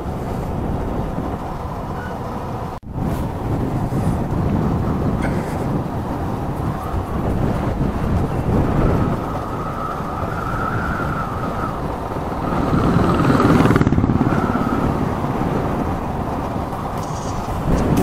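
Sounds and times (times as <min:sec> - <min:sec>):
road noise: 0:00.0 - 0:18.0
motorcycle engine running: 0:12.0 - 0:18.0.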